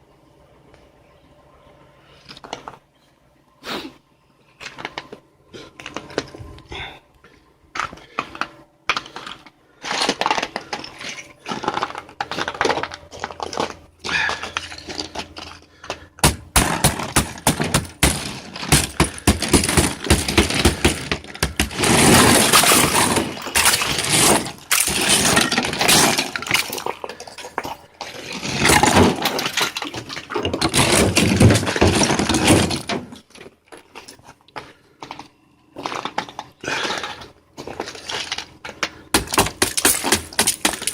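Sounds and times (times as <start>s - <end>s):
ice being chipped and scraped: 16.6s - 26.9s, 39.2s - 40.9s.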